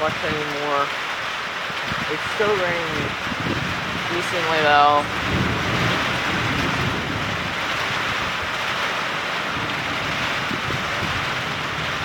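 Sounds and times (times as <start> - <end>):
steady rain: 0.0 - 12.0
low thunder rumble: 1.7 - 12.0.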